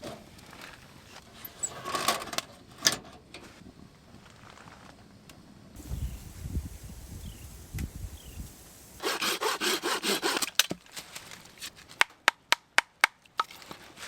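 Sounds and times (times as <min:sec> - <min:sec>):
saw cutting firewood: 0:09.0 - 0:10.7.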